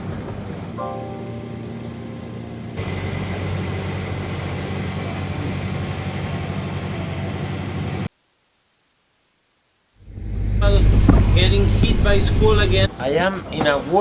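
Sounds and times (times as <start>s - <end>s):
low engine drone: 0.0s - 8.1s, 10.0s - 12.9s
rushing noise: 10.0s - 12.9s.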